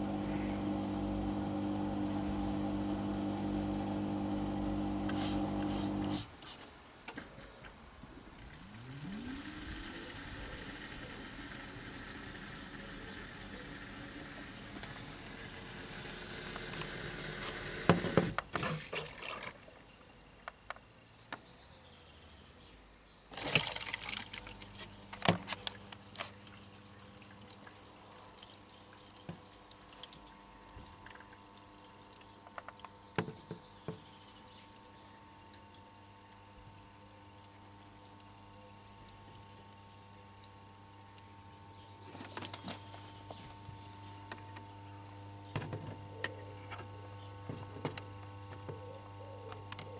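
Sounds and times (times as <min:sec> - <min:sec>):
washing machine hum: 0:00.0 - 0:06.2, 0:23.3 - 0:35.6
water splashing and pouring: 0:18.6 - 0:19.7, 0:23.3 - 0:34.1.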